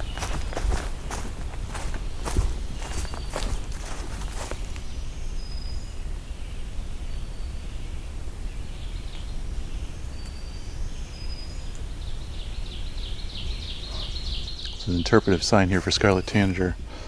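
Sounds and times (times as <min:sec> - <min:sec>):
bird singing short phrases: 0:08.9 - 0:16.8.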